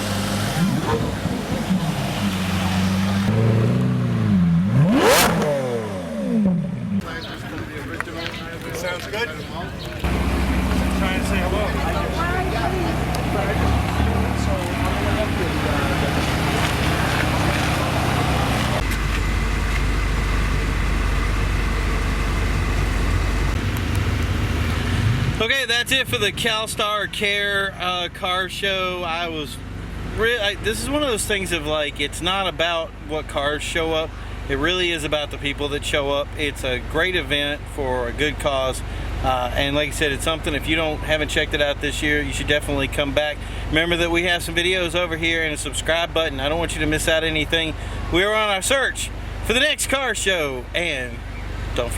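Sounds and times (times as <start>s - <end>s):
car engine revving: 0.0s - 7.6s, 10.0s - 25.5s
car engine running: 0.0s - 51.9s.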